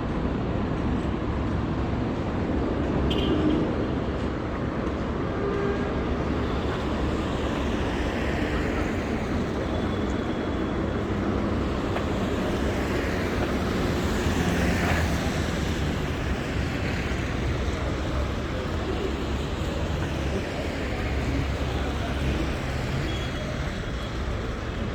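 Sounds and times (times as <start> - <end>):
traffic engines running: 0.0 - 24.9
tyres hissing on wet road: 6.1 - 24.9.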